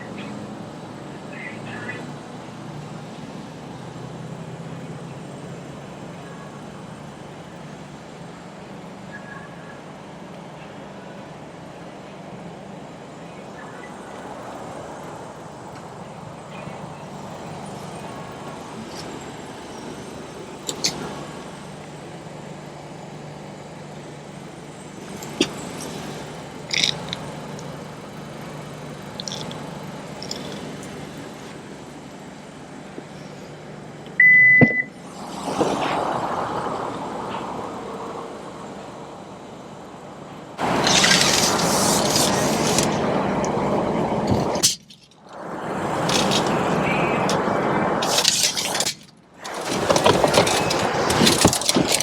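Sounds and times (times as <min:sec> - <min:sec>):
small clicks: 0:25.1 - 0:27.7, 0:29.1 - 0:31.0
high electronic beep: 0:34.2 - 0:35.0.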